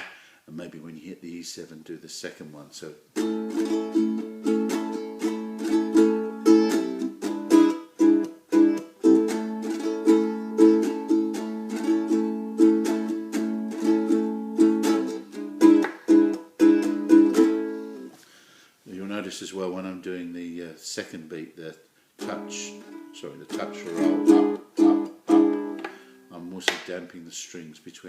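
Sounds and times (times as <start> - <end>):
ukulele strumming: 3.1 - 18.1, 22.2 - 26.2.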